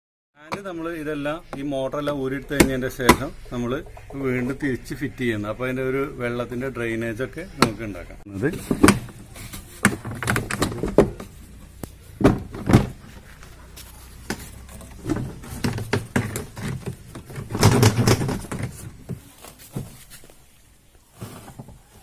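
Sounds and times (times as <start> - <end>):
knocks and thuds of machine parts: 8.5 - 11.4, 12.2 - 13.1, 14.3 - 20.0.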